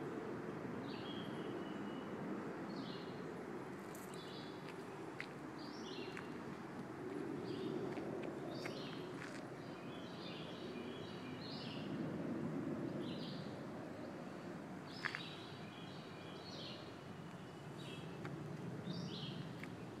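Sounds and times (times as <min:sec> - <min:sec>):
songbirds singing: 0:00.8 - 0:12.1, 0:12.8 - 0:20.0
rustle of movement on trail: 0:03.7 - 0:10.4, 0:14.4 - 0:20.0.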